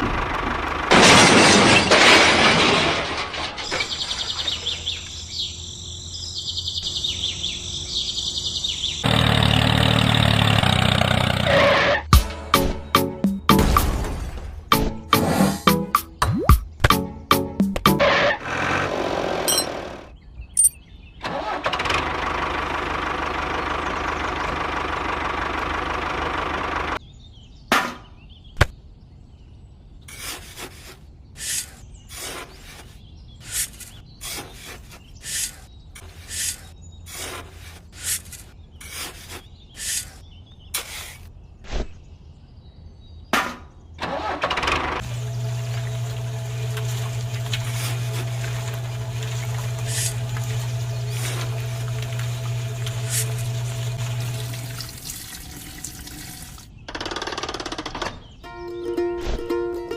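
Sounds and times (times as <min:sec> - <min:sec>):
small motor running: 0:45.0 - 0:54.8.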